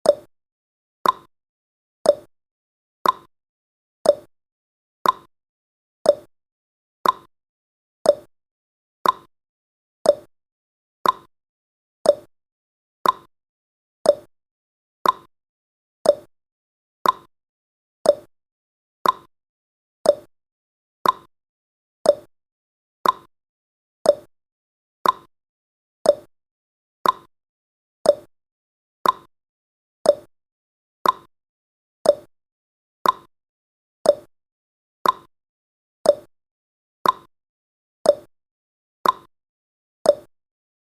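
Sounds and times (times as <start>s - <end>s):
clock ticking tick-tock: 0.0s - 0.3s, 1.0s - 1.3s, 2.0s - 2.3s, 3.0s - 3.3s, 4.0s - 4.3s, 5.0s - 5.3s, 6.0s - 6.3s, 7.0s - 7.3s, 8.0s - 8.3s, 9.0s - 9.3s, 10.0s - 10.3s, 11.0s - 11.3s, 12.0s - 12.3s, 13.0s - 13.3s, 14.0s - 14.3s, 15.0s - 15.3s, 16.0s - 16.3s, 17.0s - 17.3s, 18.0s - 18.3s, 19.0s - 19.3s, 20.0s - 20.3s, 21.0s - 21.3s, 22.0s - 22.3s, 23.0s - 23.3s, 24.0s - 24.3s, 25.0s - 25.3s, 26.0s - 26.3s, 27.0s - 27.3s, 28.0s - 28.3s, 29.0s - 29.3s, 30.0s - 30.3s, 31.0s - 31.3s, 32.0s - 32.3s, 33.0s - 33.3s, 34.0s - 34.3s, 35.0s - 35.3s, 36.0s - 36.3s, 37.0s - 37.3s, 38.0s - 38.3s, 39.0s - 39.3s, 40.0s - 40.4s.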